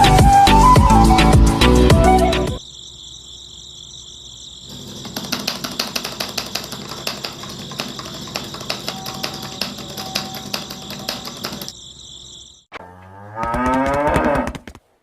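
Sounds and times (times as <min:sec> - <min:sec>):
gears clicking and rattling: 0:04.8 - 0:11.8.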